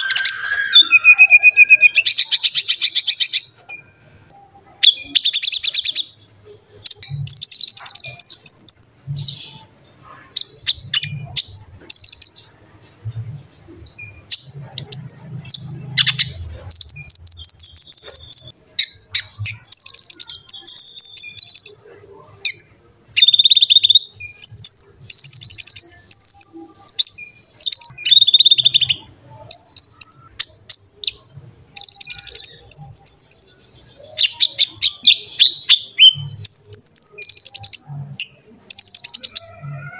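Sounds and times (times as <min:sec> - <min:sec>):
bird singing rapid trills: 0:22.5 - 0:39.6.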